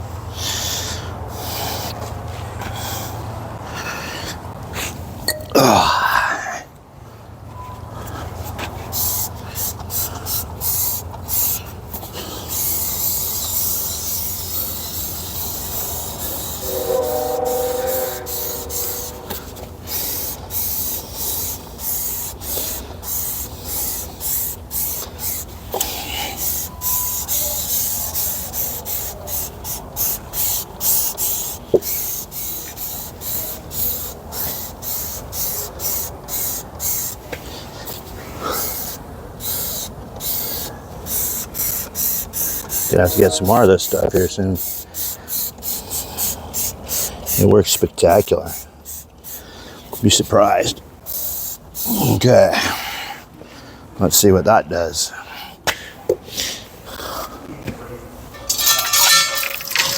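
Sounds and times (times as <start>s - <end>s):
brief tone: 7.5s - 7.9s, 16.7s - 19.4s
aerosol spray hissing bursts: 8.9s - 17.2s, 17.8s - 37.2s, 38.6s - 49.4s, 51.1s - 52.0s
low steady hum: 14.3s - 21.8s.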